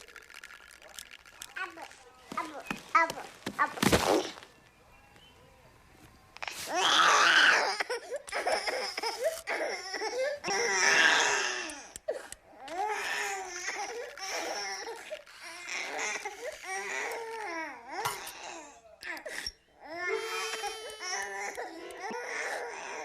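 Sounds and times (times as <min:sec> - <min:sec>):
high-pitched sobbing cries: 0:06.7 - 0:23.0.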